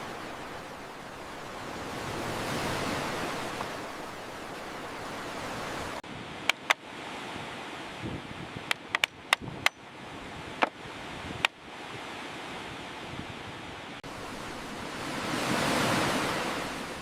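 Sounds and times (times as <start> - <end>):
wave breaking: 0.0 - 6.0, 14.1 - 17.0
sea surf washing: 0.0 - 9.4, 10.0 - 17.0
sharp knocks: 6.5 - 6.8, 8.7 - 9.8.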